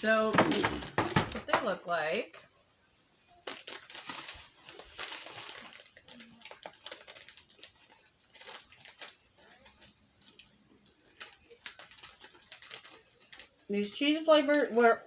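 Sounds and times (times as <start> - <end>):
plastic wrapper crinkling: 3.2 - 14.8.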